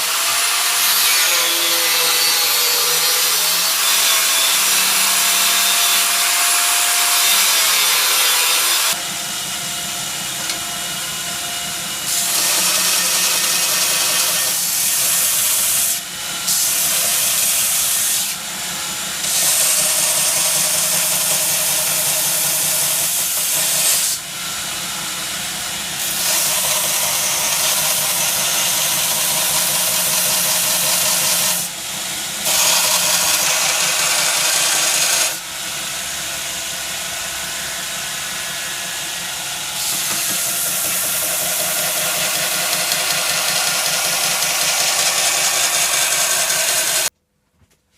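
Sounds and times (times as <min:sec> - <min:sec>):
grinder on steel hissing: 0:00.0 - 0:47.1
grinder motor hum: 0:32.4 - 0:47.1.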